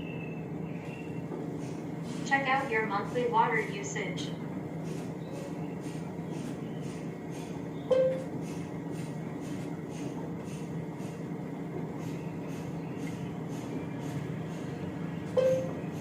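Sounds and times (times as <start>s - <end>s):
short electronic beep: 7.9s - 8.3s, 15.4s - 15.8s.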